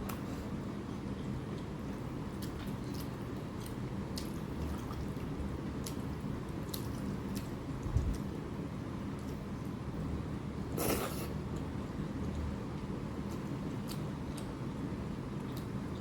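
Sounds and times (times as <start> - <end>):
wet chewing mouth sounds: 10.8 - 16.0.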